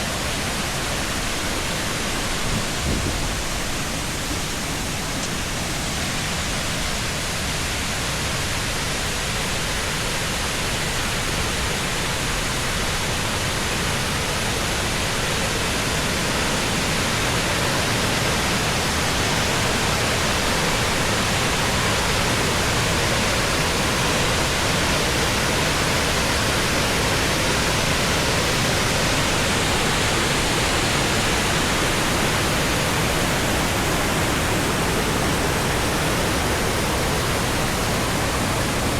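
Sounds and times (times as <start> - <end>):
waterfall rushing water: 0.0 - 38.9.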